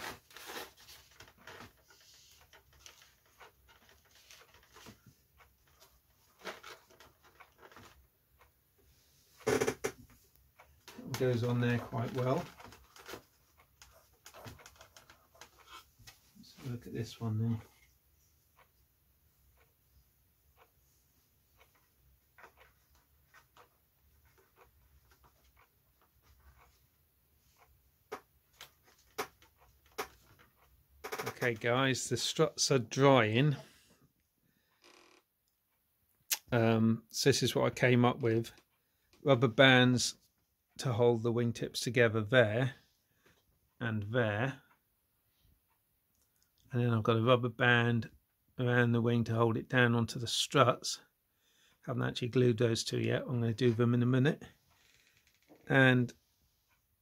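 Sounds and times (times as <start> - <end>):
clicks and rustles of model parts: 9.4 - 16.2.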